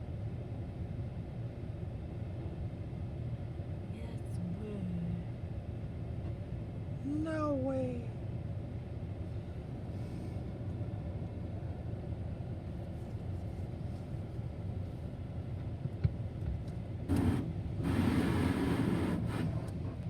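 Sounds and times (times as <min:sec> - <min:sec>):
car wash machinery rumbling: 0:17.1 - 0:19.9.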